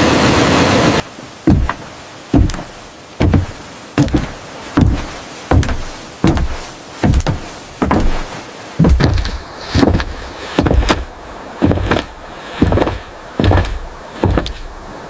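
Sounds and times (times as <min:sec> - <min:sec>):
loud steady rushing noise: 0:00.0 - 0:15.0
tool striking wood: 0:01.5 - 0:08.2.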